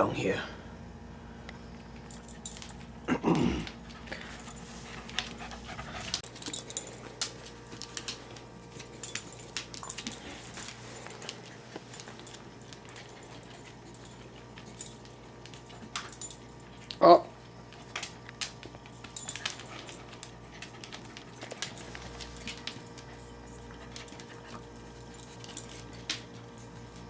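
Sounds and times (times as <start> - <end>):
dog tags jingling: 2.1 - 3.0, 4.2 - 27.0.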